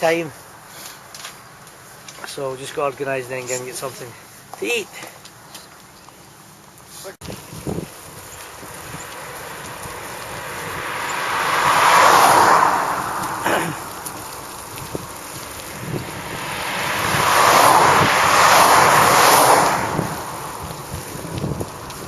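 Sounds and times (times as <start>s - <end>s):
vehicles passing: 0.0s - 22.0s.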